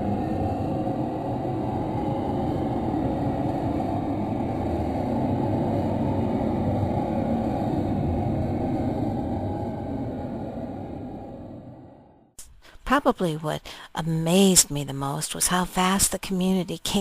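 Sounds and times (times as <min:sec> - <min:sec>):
steady low rumble: 0:00.0 - 0:12.4.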